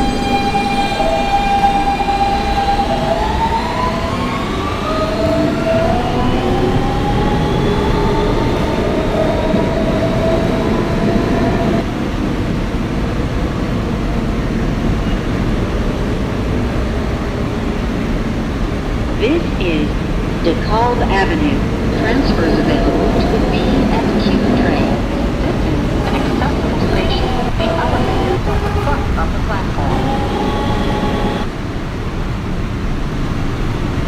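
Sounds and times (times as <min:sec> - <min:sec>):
wheels rumbling on track: 0:00.0 - 0:34.0
electric motor whine rising: 0:29.8 - 0:31.5.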